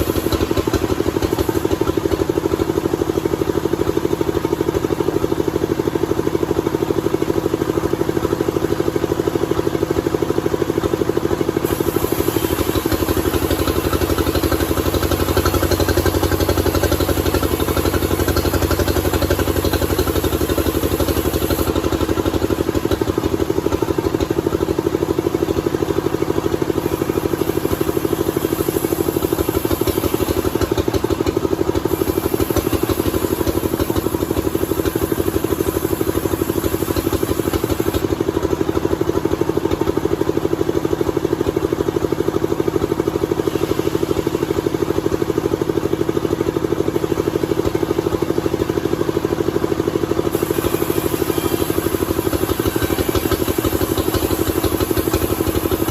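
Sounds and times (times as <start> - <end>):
sawmill machinery droning: 0.0 - 40.5, 41.6 - 55.9
high hiss: 11.6 - 22.7, 26.9 - 31.0, 31.9 - 38.0, 50.3 - 55.9.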